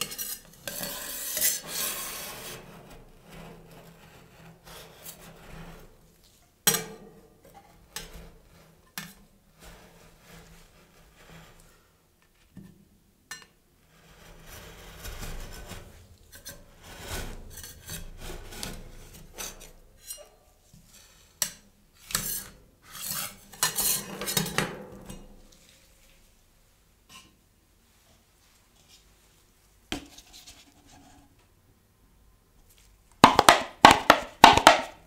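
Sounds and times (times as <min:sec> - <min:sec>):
spatula scraping frozen ice cream: 0:00.0 - 0:06.0, 0:07.7 - 0:12.0, 0:13.9 - 0:20.2
metal spatula tapping steel plate: 0:33.2 - 0:34.9.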